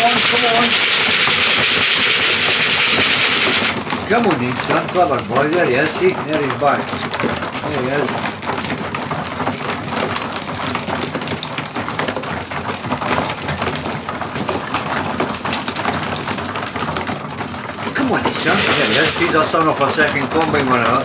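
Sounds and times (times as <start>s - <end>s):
pigeons cooing: 0.0s - 3.9s, 17.9s - 19.6s
pigeon wings and feet on wood: 0.0s - 21.0s.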